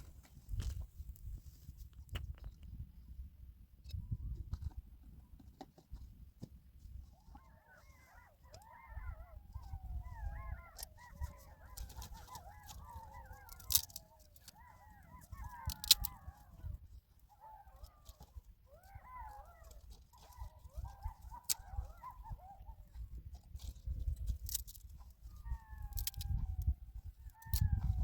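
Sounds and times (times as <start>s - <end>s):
wolves howling and yipping: 7.0s - 28.0s.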